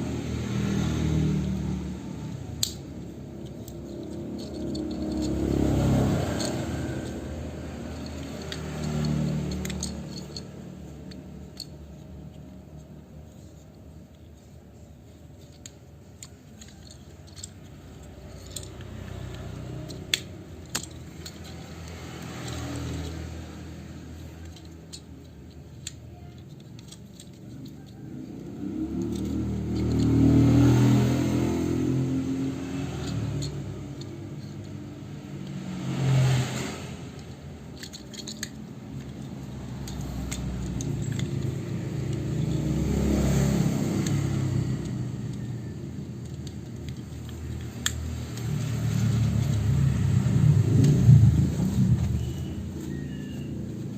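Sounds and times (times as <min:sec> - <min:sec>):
plastic toy parts clicking: 0:01.4 - 0:53.9
low rumbling: 0:48.1 - 0:53.6.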